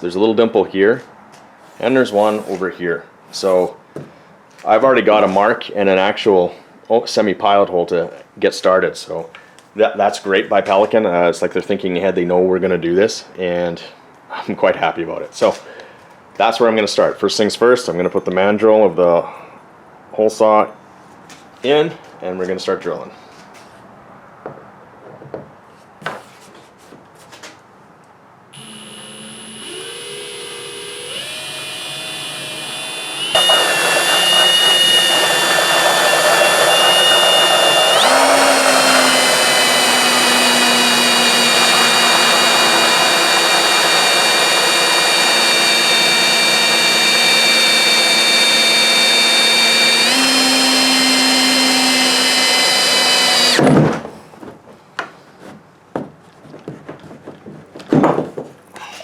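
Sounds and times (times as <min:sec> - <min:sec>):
drill cutting through plastic: 0:02.1 - 0:02.6, 0:28.6 - 0:53.8.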